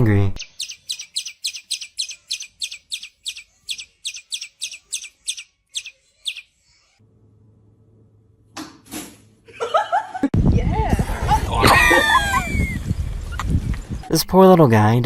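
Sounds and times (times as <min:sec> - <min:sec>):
birds chirping sharply: 0:00.0 - 0:07.0.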